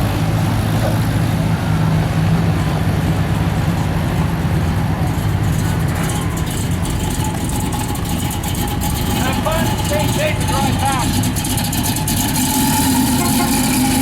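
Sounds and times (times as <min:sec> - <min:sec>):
car engine idling: 0:00.0 - 0:14.0
faint voices: 0:00.7 - 0:11.2.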